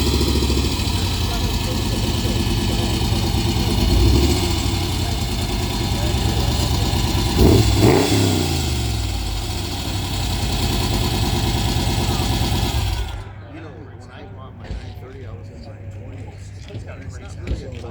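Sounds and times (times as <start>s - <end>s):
engine throttle blip: 0.0s - 13.9s
car engine idling: 0.0s - 16.3s.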